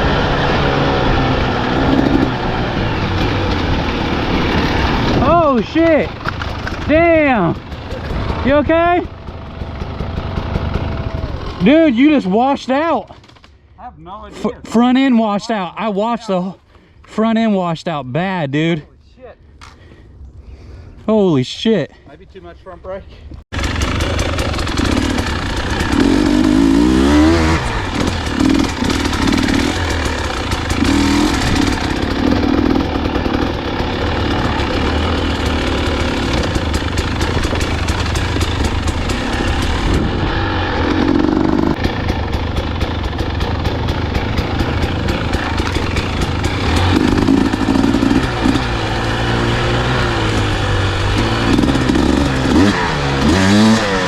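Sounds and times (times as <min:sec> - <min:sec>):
dirt bike engine revving: 0:00.0 - 0:12.6, 0:23.5 - 0:54.0.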